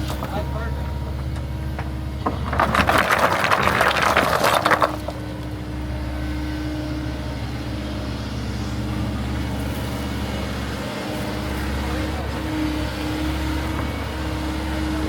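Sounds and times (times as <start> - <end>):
engine running: 0.0 - 15.0
clattering scraping noise: 1.8 - 5.2.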